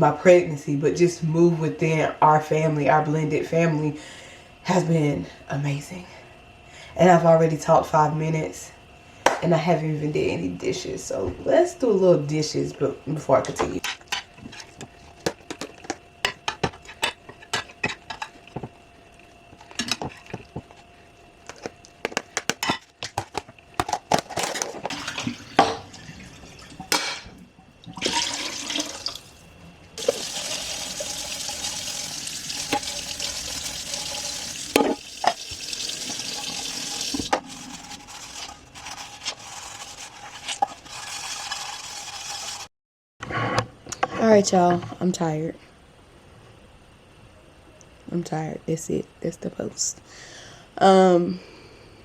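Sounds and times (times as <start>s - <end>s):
faucet running: 24.9s - 26.9s, 27.8s - 29.4s, 30.0s - 38.6s
dishes clinking: 34.7s - 35.4s.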